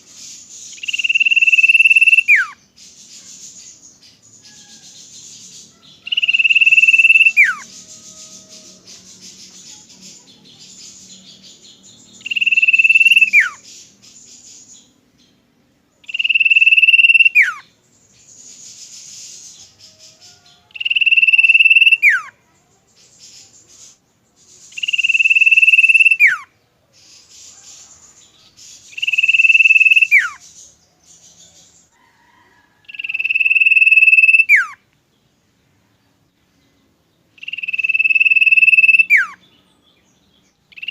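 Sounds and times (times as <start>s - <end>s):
scratchy bird chatter: 0.0s - 15.0s, 17.9s - 22.0s, 22.6s - 26.2s, 26.9s - 32.0s
bird whistling: 0.7s - 2.6s, 6.1s - 8.7s, 12.2s - 14.6s, 16.0s - 17.6s, 20.8s - 22.3s, 24.7s - 26.5s, 28.9s - 30.5s, 32.9s - 34.8s, 37.4s - 39.4s.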